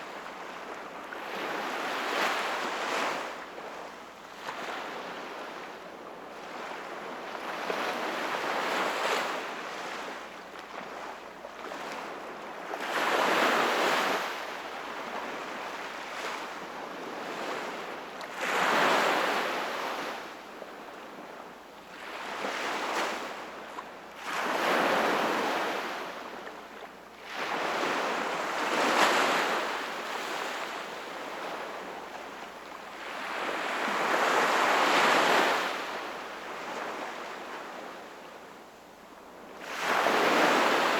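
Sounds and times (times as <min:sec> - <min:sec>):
sea waves breaking on shore: 0:24.2 - 0:38.0, 0:39.6 - 0:40.9.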